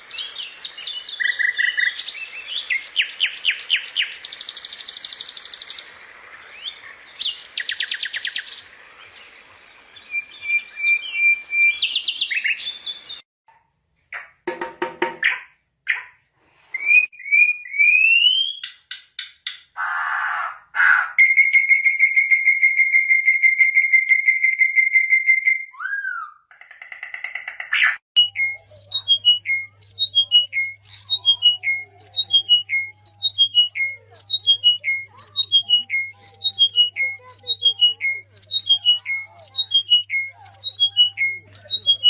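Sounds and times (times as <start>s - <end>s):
harsh bird calls: 0.0s - 13.2s, 19.8s - 42.0s
whistled bird trill: 0.1s - 5.9s, 9.6s - 13.2s, 16.8s - 18.8s, 21.2s - 26.5s, 27.8s - 42.0s.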